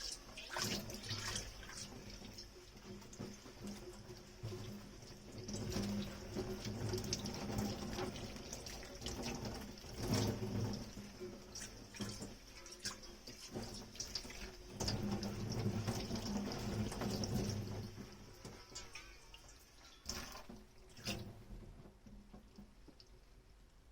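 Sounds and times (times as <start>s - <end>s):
tap water running: 0.0s - 23.2s
dishes and utensils clinking: 18.5s - 20.2s.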